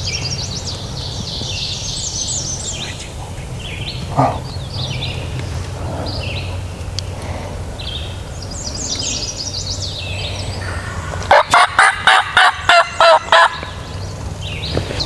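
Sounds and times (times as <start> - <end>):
songbirds chirping faintly: 0.0 - 15.0
turkey gobbling: 10.6 - 14.0.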